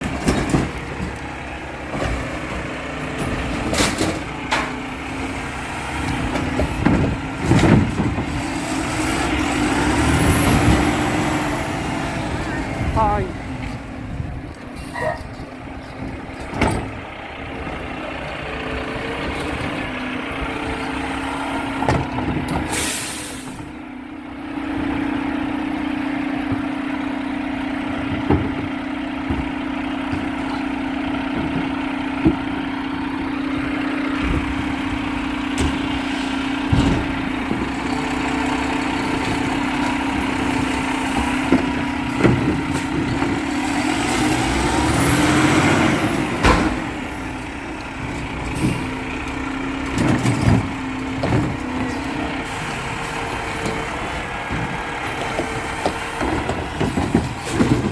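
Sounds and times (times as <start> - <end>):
garbage truck engine running: 0.0 - 57.9
air brake hiss: 22.7 - 23.6
sharp knocks and bangs: 38.5 - 47.2.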